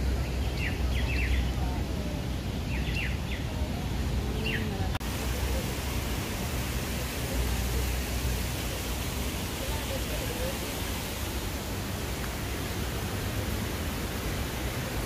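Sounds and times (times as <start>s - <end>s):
small birds chirping: 0.0s - 5.0s
steady outdoor noise: 0.0s - 15.0s.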